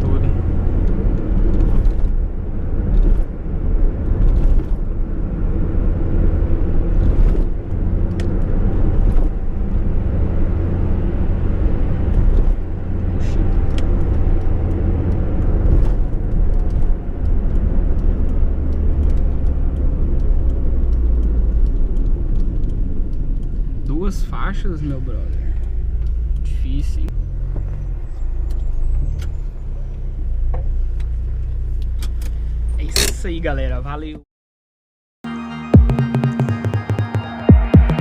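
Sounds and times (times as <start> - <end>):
road noise: 0.0 - 34.1.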